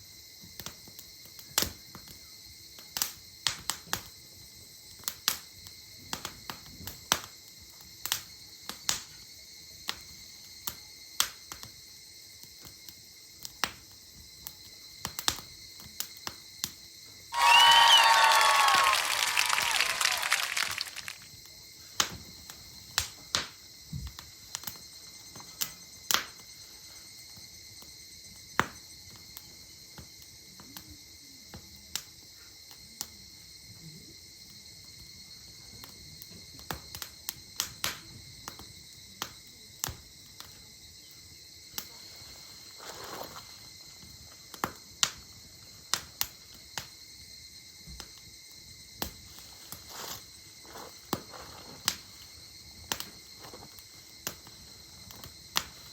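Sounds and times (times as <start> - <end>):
insects chirring: 0.0 - 55.9
campfire crackling and popping: 17.4 - 21.4, 50.5 - 55.9.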